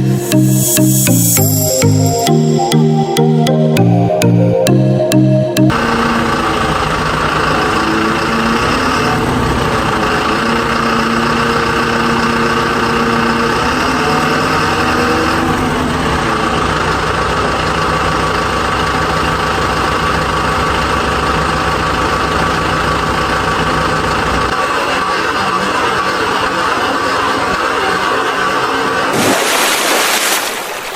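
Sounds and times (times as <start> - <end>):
vehicle engine idling: 5.7 - 29.1.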